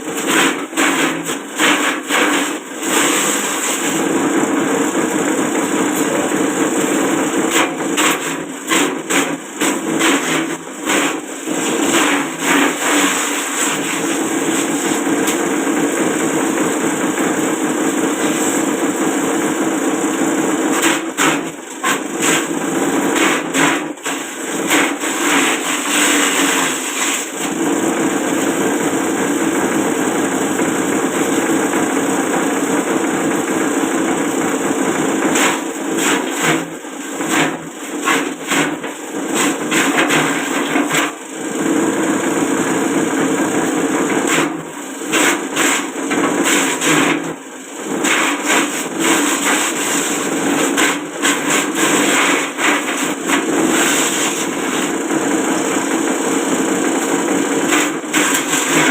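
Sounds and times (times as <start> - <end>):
chopping and knocking of blades: 20.7 - 27.7, 35.2 - 41.2, 44.0 - 58.9.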